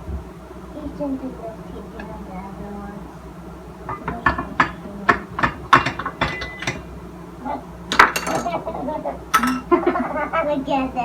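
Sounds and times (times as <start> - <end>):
ratcheting kitchen tool clicks: 9.4 - 9.7.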